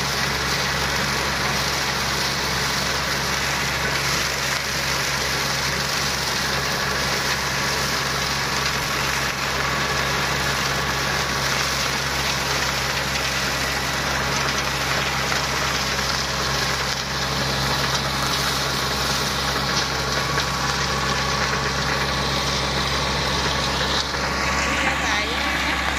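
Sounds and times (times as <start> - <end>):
mower engine running: 0.0 - 25.9
rising whine: 17.6 - 25.9.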